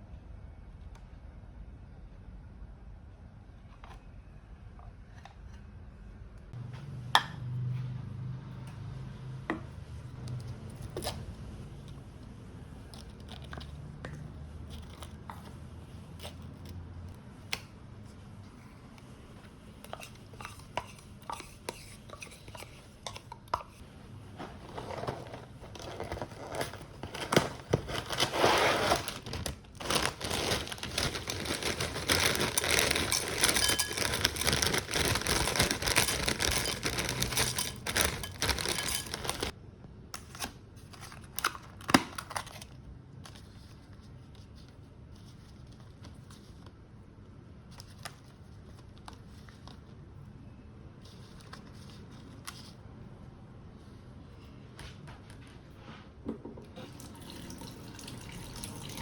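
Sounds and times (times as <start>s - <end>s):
packaging crinkling and tearing: 24.5s - 39.6s.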